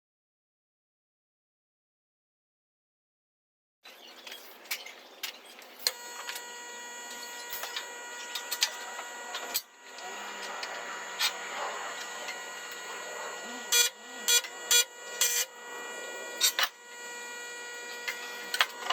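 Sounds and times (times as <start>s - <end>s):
sharp clicks and crackle: 4.3s - 12.9s, 16.4s - 16.8s, 17.9s - 18.9s
power tool humming: 5.7s - 18.9s.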